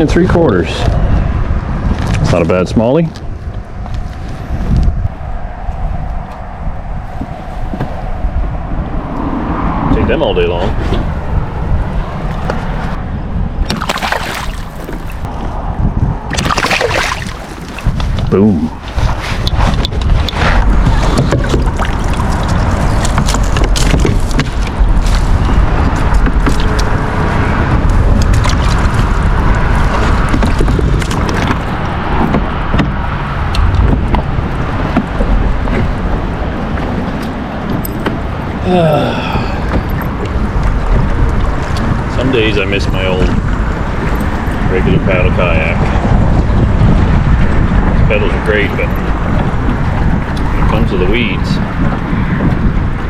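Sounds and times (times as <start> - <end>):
steady low rumble: 0.0 - 53.0
wind buffeting microphone: 0.0 - 53.0
water splashing against kayak: 13.6 - 15.6, 16.3 - 26.8, 28.0 - 38.5
water churning: 13.6 - 24.9.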